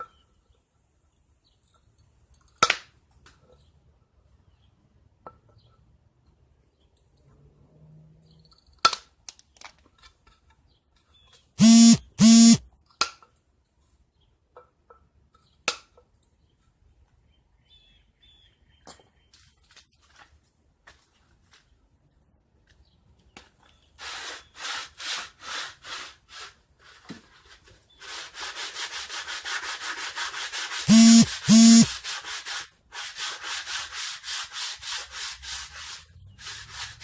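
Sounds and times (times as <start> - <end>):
short loud beeps: 11.6 - 12.6, 30.9 - 31.9.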